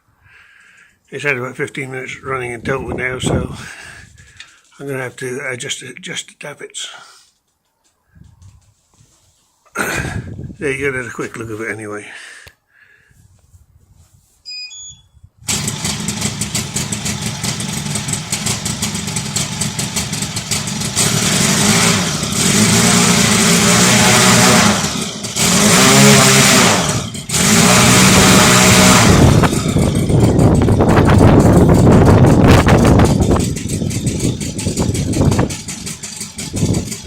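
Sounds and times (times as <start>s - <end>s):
model aircraft engine running: 15.5s - 37.0s.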